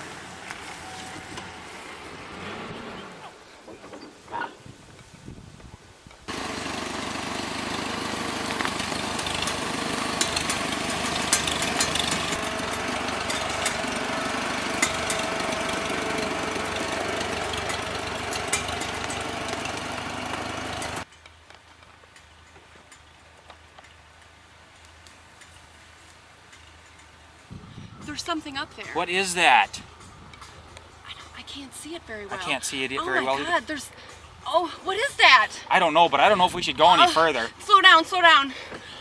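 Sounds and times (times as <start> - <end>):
sharp clicks and rattles: 6.2 - 24.3
vehicle engine running: 6.3 - 21.1.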